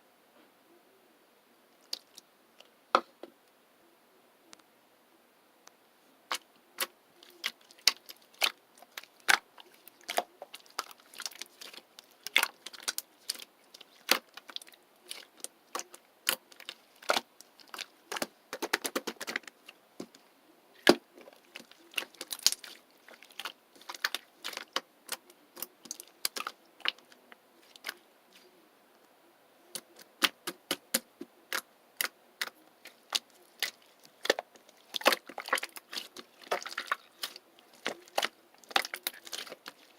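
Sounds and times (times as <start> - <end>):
sharp clicks and taps: 29.7 - 32.6.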